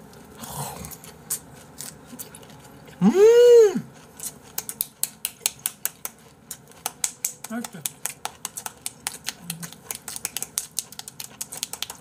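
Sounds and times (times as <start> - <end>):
wet chewing: 0.0 - 3.0, 3.8 - 12.0
person humming mmm: 3.0 - 3.9, 9.4 - 9.8.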